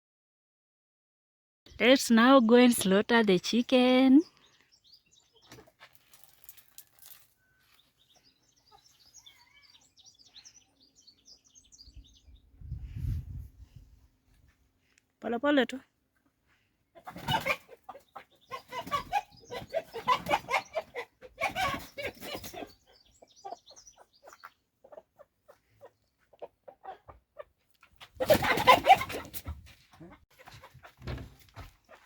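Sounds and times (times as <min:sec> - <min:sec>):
rooster squawking and clucking: 0:17.0 - 0:22.8, 0:26.4 - 0:31.0.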